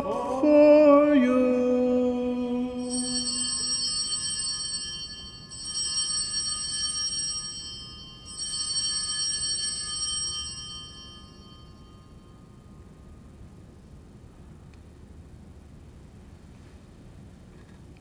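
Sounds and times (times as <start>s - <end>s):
altar bells ringing: 2.8s - 13.0s.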